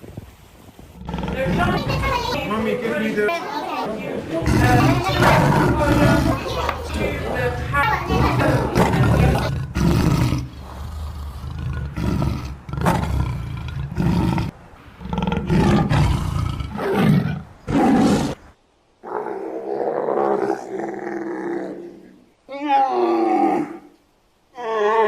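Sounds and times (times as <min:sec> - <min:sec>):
big cat roaring: 0:01.0 - 0:02.5, 0:04.3 - 0:18.4, 0:19.0 - 0:22.2.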